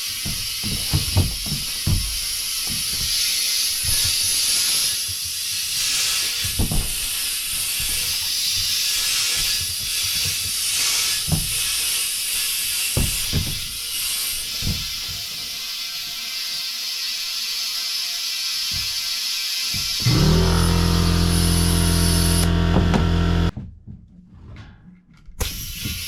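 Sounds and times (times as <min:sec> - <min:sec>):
compressed air hissing: 0:00.1 - 0:15.0, 0:18.5 - 0:23.5, 0:25.4 - 0:26.0.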